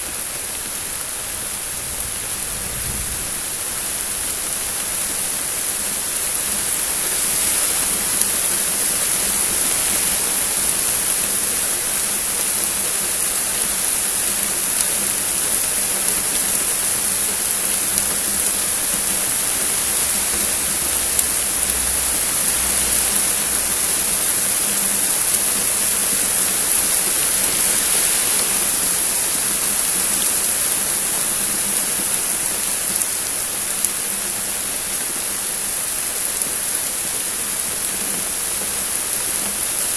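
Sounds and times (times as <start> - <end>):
heavy rain falling: 0.0 - 39.9
sharp ticks of raindrops: 0.0 - 39.9.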